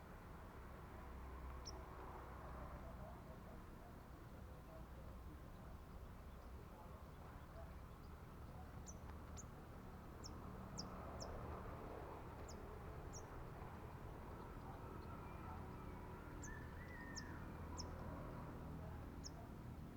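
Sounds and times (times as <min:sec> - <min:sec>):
faint background noise: 0:00.0 - 0:19.9
small bird chirping: 0:16.4 - 0:18.0.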